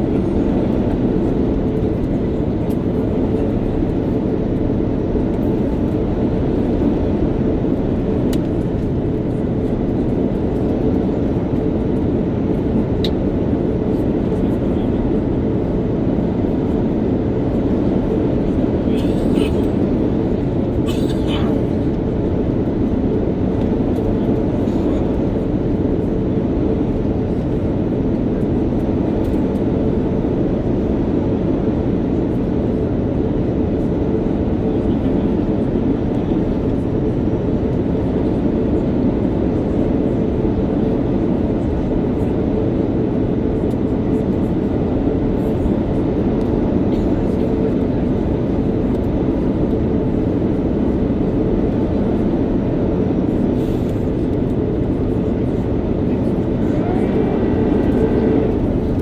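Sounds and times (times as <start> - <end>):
jet engines droning: 0.0 - 59.0
airflow rushing over fuselage: 54.7 - 59.0.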